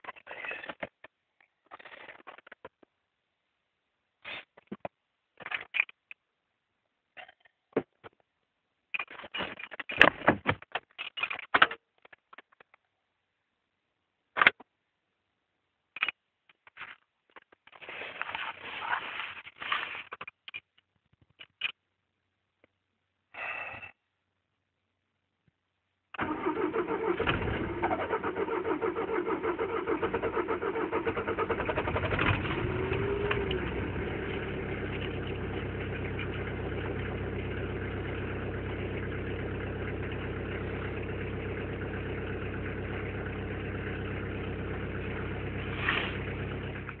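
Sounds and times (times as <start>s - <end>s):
diesel engine cold-starting: 26.2s - 47.0s.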